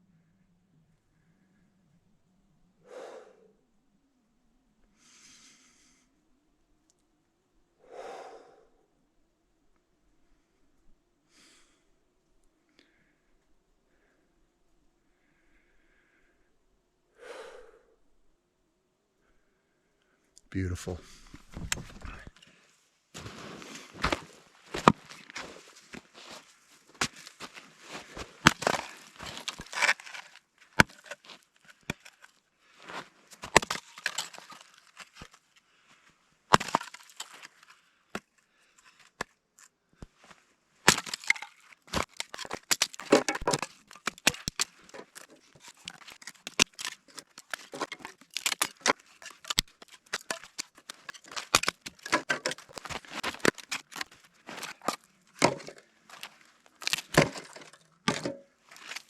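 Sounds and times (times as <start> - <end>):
dry wood snapping: 27.0 - 32.3, 33.3 - 35.4, 36.5 - 38.3, 40.8 - 59.0.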